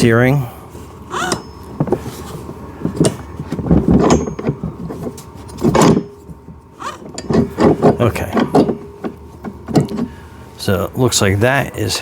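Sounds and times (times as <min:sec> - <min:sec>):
steering parts knocking and rattling: 0:01.3 - 0:10.2.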